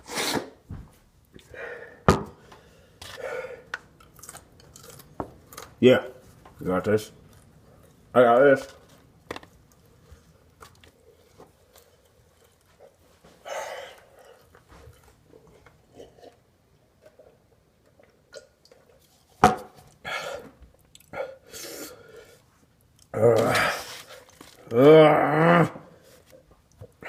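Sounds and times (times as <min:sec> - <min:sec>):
man chewing food: 0:02.5 - 0:06.6, 0:07.2 - 0:08.1, 0:08.8 - 0:23.2, 0:23.8 - 0:24.8.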